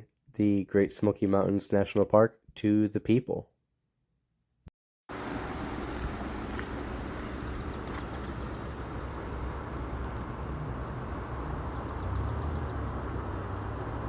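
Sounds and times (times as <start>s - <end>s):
outdoor rumble: 5.1s - 14.0s
small bird trilling: 11.6s - 12.8s.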